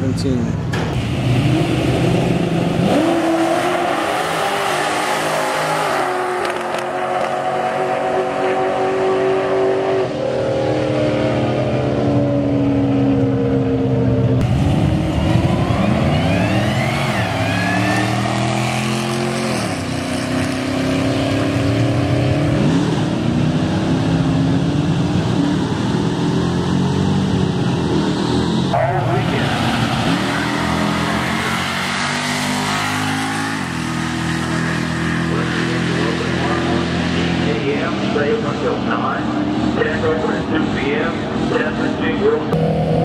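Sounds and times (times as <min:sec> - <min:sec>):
car engines at full throttle: 0:00.0 - 0:43.0
car passing engine revving: 0:00.8 - 0:23.9.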